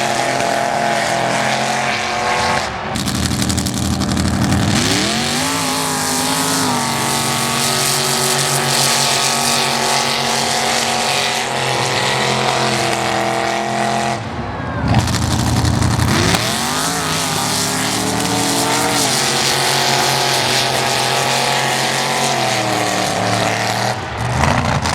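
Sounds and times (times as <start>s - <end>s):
truck engine revving high: 0.0s - 24.9s.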